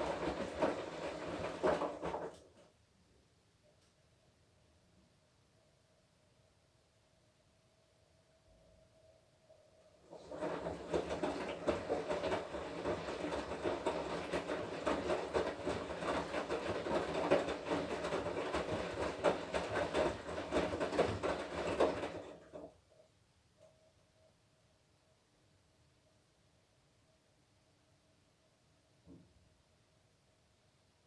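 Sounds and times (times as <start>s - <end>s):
washing machine laundry sloshing: 0.0s - 2.6s, 10.1s - 22.7s.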